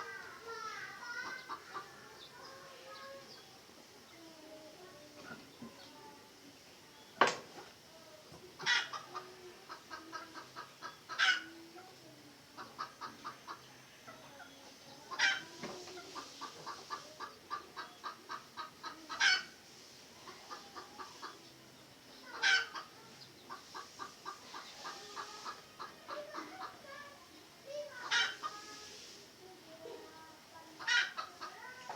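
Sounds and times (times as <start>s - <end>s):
junglefowl clucking: 8.6s - 11.6s, 12.6s - 14.4s, 15.0s - 19.6s, 20.2s - 21.5s, 22.2s - 27.0s, 27.9s - 28.8s, 30.8s - 31.9s
sharp junglefowl calls: 8.6s - 11.6s, 12.6s - 19.6s, 20.2s - 21.4s, 22.2s - 27.0s, 27.9s - 28.9s, 30.8s - 31.8s.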